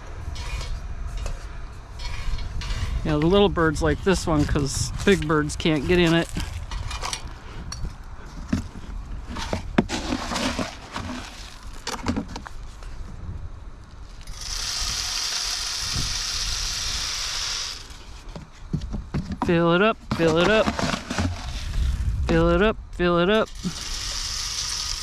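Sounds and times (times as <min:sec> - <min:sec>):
birdseed pouring: 0:09.9 - 0:11.8, 0:14.2 - 0:18.0, 0:23.5 - 0:25.0.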